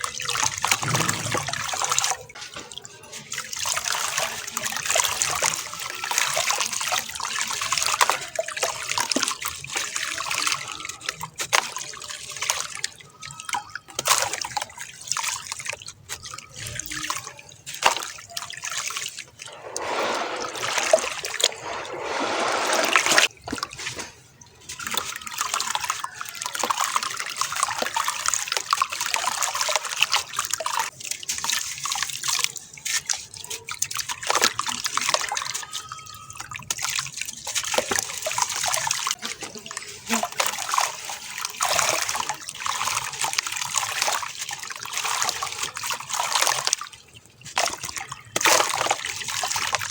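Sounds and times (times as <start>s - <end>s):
cement crumbling in water crackling: 0.5s - 2.8s.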